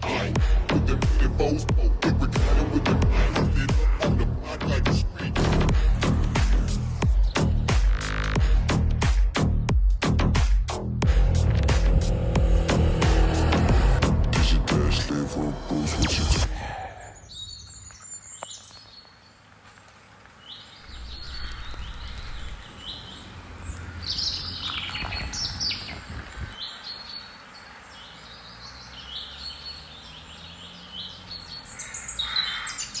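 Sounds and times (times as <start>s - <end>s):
low rumble: 0.0s - 9.0s, 11.0s - 17.0s, 20.8s - 23.9s
small birds chirping: 5.8s - 8.3s, 16.5s - 33.0s.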